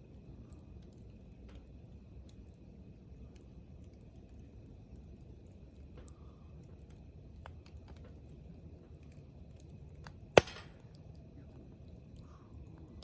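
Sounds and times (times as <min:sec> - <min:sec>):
campfire crackling: 0:00.0 - 0:13.0
loud sharp pop of fire: 0:10.4 - 0:10.9.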